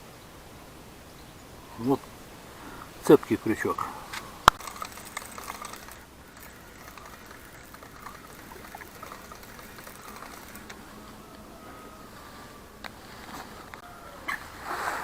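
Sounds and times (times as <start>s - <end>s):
pond water trickling and lapping: 1.5s - 15.0s
small ticks: 4.1s - 11.4s.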